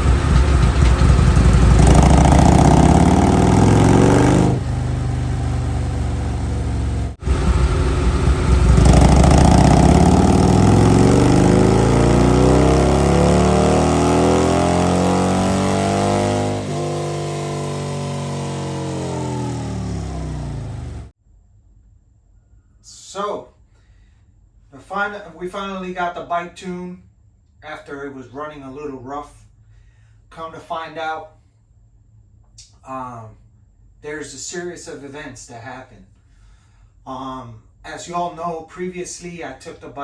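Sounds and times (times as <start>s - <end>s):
motorcycle engine revving: 0.0s - 21.2s.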